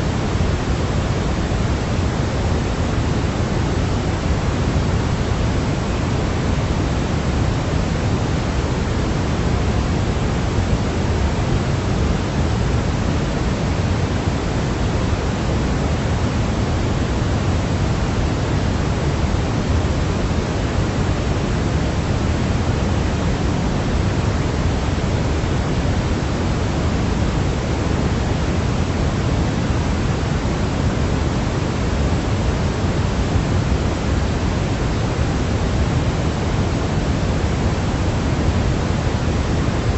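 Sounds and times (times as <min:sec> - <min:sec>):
steady synthetic pink noise: 0:00.0 - 0:39.9.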